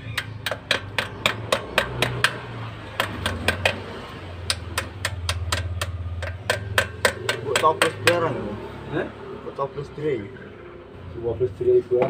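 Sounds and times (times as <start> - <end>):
hammer striking metal: 4.5 - 8.3.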